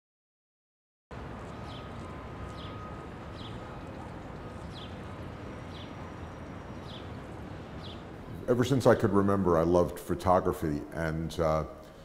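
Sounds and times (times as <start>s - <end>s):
bird chirping: 1.4s - 8.7s.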